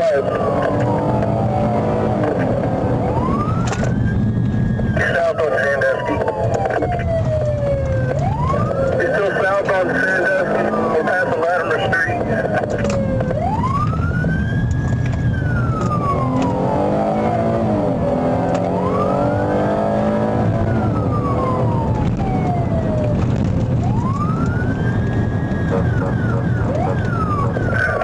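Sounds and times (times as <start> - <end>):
car engine rumble: 0.0 - 28.0
police siren wailing: 0.0 - 28.0
road noise: 0.0 - 28.0.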